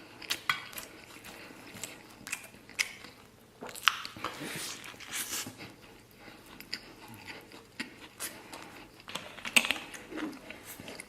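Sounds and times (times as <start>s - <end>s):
food crunching: 0.0s - 11.0s
person chewing food: 0.0s - 11.0s.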